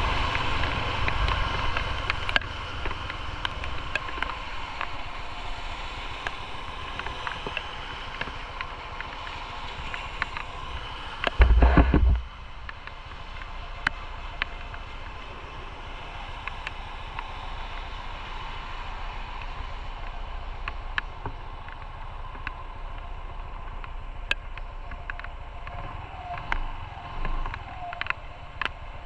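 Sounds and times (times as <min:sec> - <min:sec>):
light ticks: 0:00.2 - 0:15.3, 0:16.2 - 0:29.0
wind buffeting microphone: 0:10.1 - 0:12.6
motorcycle engine: 0:11.4 - 0:12.2.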